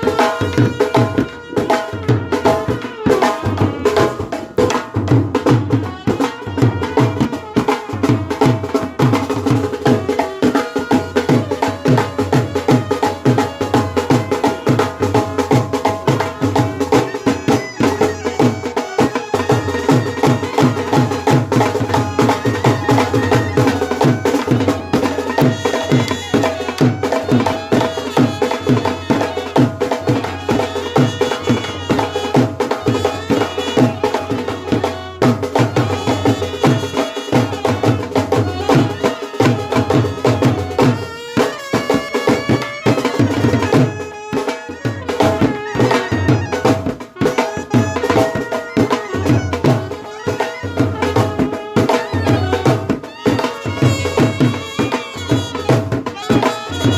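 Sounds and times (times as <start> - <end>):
steady drum beat: 0.0 - 56.9
brass band horn melody: 25.6 - 35.2, 47.2 - 56.9.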